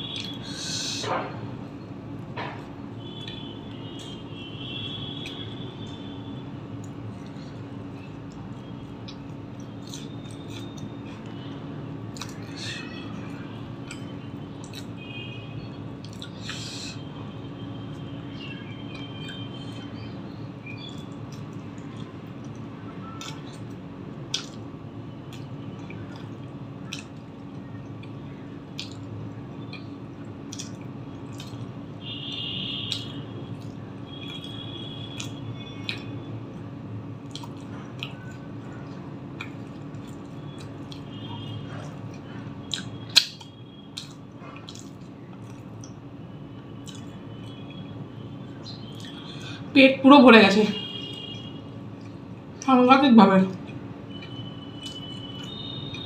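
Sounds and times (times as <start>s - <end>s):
wet chewing and lip smacks: 0.0s - 1.0s, 6.8s - 12.7s, 13.3s - 15.0s, 15.9s - 17.0s, 17.8s - 20.1s, 20.7s - 31.8s, 32.8s - 49.6s, 50.9s - 52.7s, 53.5s - 56.0s.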